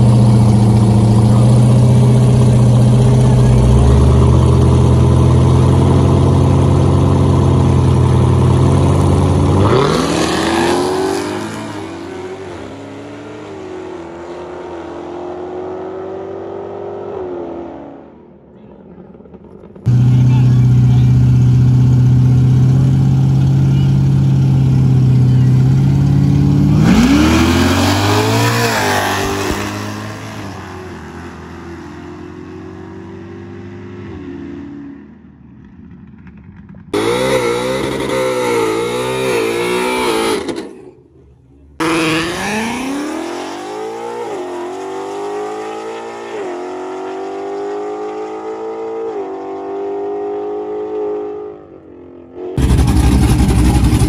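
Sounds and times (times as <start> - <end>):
car engines revving and accelerating: 0.0 - 18.3, 19.0 - 35.3, 36.7 - 54.0.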